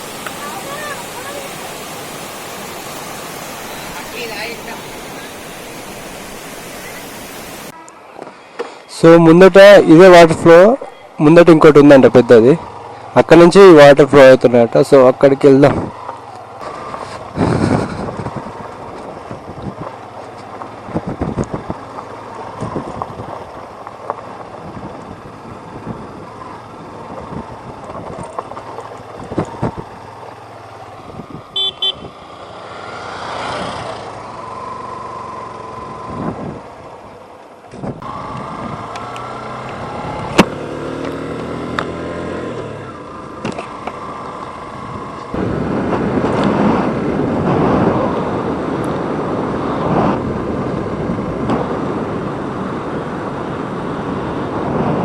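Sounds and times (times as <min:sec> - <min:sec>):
wind and road rush: 0:00.0 - 0:55.0
horn toot: 0:31.6 - 0:32.1.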